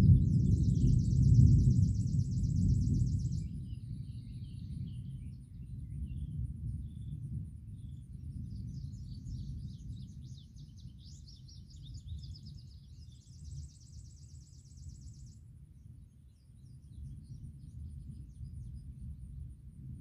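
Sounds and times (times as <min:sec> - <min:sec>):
steady low rumble: 0:00.0 - 0:12.1
songbirds chirping: 0:00.0 - 0:19.2.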